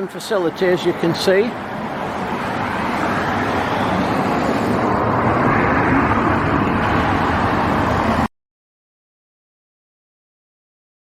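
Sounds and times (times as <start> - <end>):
road traffic rushing: 0.0 - 8.3.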